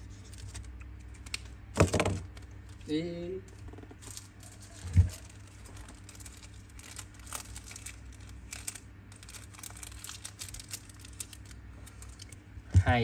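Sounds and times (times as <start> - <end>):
low steady hum: 0.0 - 13.0
rustling: 2.3 - 12.4.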